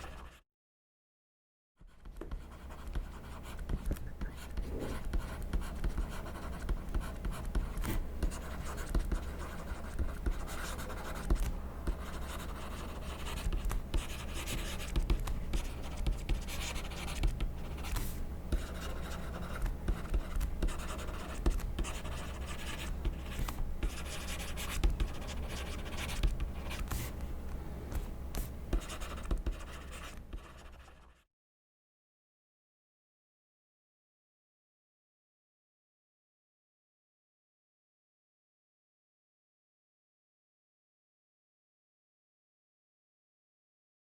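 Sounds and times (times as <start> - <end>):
pen scratching on paper: 0.0 - 0.4, 1.8 - 27.2, 28.4 - 31.2.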